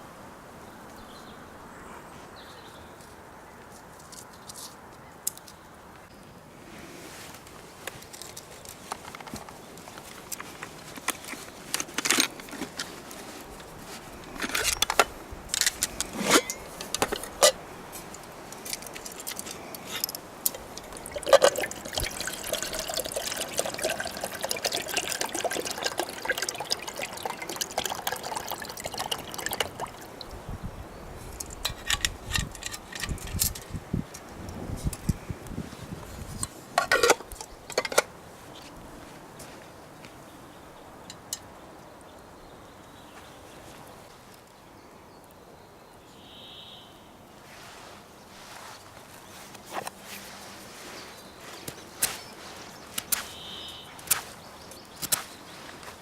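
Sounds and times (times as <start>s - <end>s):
water pouring into pot: 20.4s - 30.3s.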